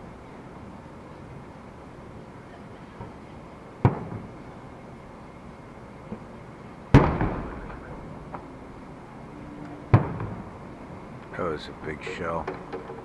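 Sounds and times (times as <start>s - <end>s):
firework shells bursting: 6.9s - 8.6s, 9.9s - 10.6s.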